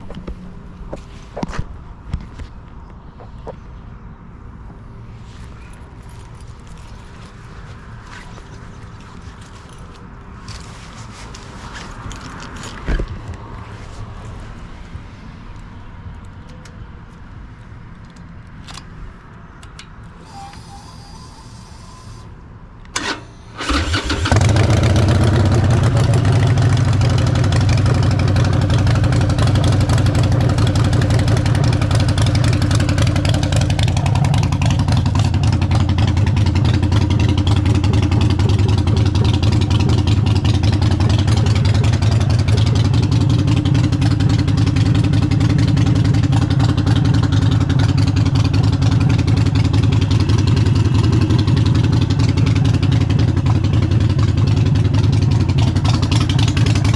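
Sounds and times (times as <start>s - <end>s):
motorcycle engine starting and idling: 22.8s - 56.9s.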